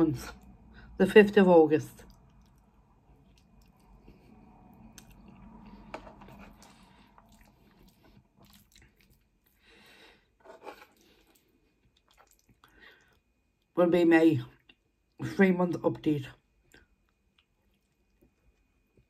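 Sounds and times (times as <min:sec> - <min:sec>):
quiet chewing of soft food: 0:01.9 - 0:13.7, 0:16.4 - 0:19.0.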